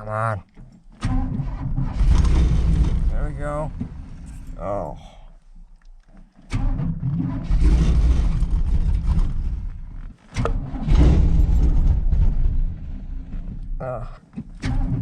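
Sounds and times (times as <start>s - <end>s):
vee eight engine starting and revving: 1.0s - 5.0s, 6.4s - 13.7s.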